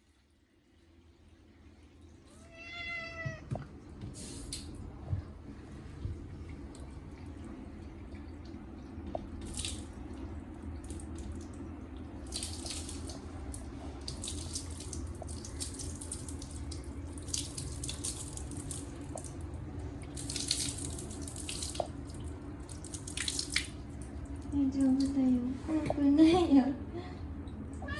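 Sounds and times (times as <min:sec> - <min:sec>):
water running from tap: 0:06.1 - 0:25.4.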